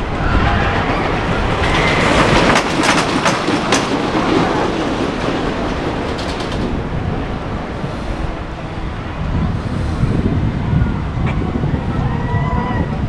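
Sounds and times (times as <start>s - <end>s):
wheels clicking over track: 0.0s - 7.2s
ride train on rails: 0.0s - 13.0s.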